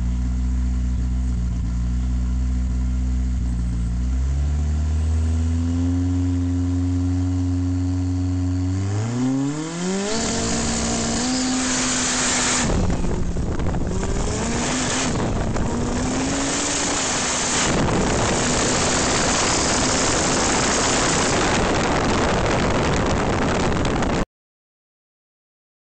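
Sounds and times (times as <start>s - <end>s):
racing car engine revving: 4.2s - 24.2s.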